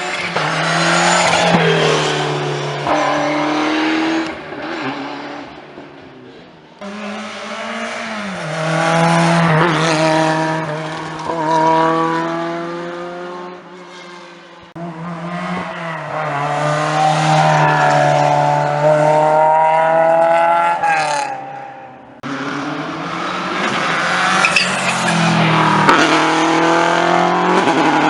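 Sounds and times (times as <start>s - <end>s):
rally car engines accelerating: 0.0s - 21.4s, 22.2s - 28.0s.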